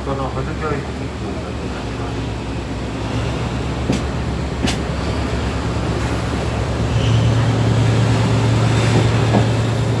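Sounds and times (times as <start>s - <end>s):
train carriage hum and rumble: 0.0s - 10.0s.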